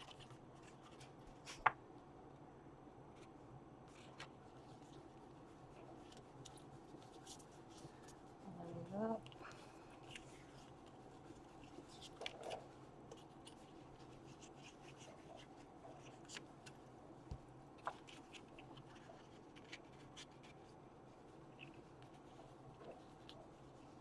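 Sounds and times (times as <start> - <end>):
paper rustling and tapping: 0.0 - 1.8
low room hum: 0.0 - 24.0.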